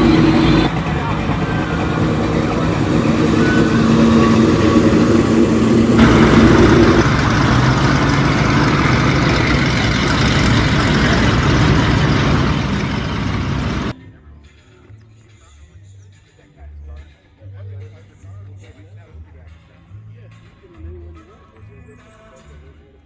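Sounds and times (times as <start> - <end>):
car engine running: 0.0 - 13.9.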